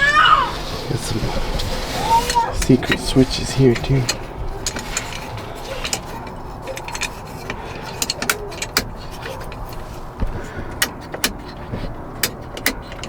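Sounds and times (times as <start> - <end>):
light rattles: 0.0 - 13.0
sharp clicks of switches: 8.0 - 9.7, 10.7 - 13.0.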